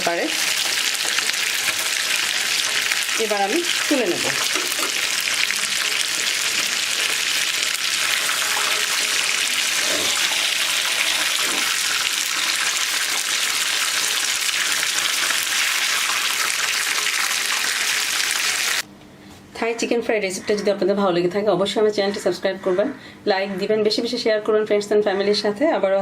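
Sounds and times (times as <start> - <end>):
chicken frying in hot oil: 0.0 - 18.8.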